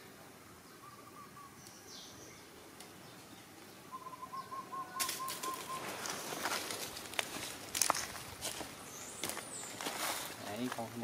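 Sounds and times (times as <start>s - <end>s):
faint high falling chirp: 3.9s - 6.3s
footsteps rustling dry leaves: 5.0s - 11.0s.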